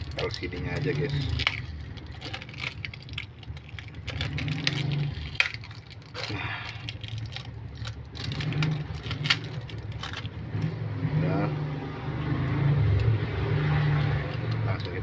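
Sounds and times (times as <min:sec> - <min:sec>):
tools and small parts clicking: 0:00.0 - 0:10.7
low engine-like hum: 0:00.0 - 0:15.0.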